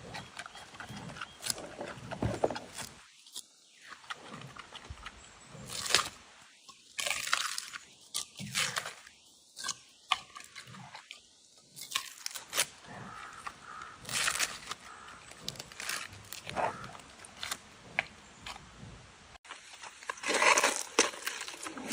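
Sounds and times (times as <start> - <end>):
panda chewing bamboo: 11.8 - 18.7.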